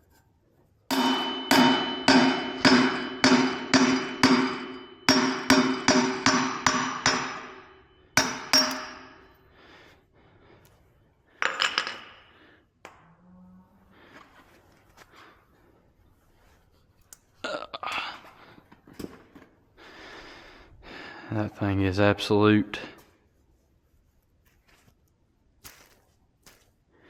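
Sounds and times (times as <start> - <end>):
hammer striking metal hub: 0.9 - 9.3.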